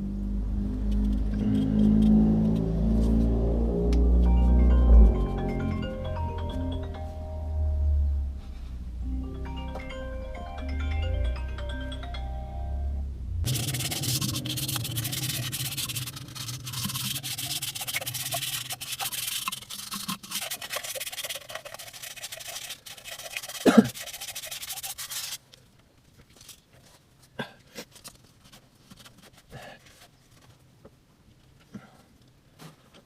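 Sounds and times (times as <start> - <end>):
abrasive scraping on hard surface: 13.5 - 25.4.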